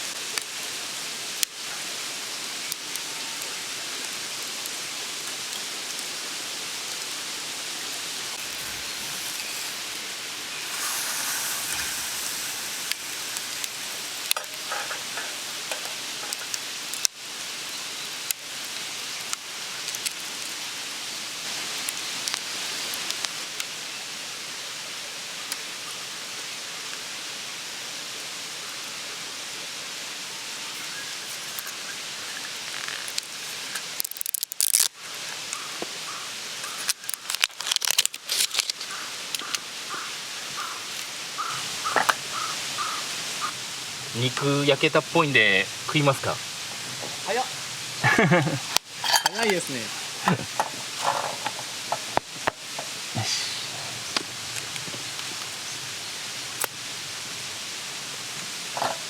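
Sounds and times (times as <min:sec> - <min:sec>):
meat sizzling over campfire: 0:00.0 - 0:59.0
fire pops and crackles: 0:00.1 - 0:01.8, 0:04.0 - 0:23.8, 0:31.4 - 0:39.6, 0:45.8 - 0:55.7, 0:56.5 - 0:56.9.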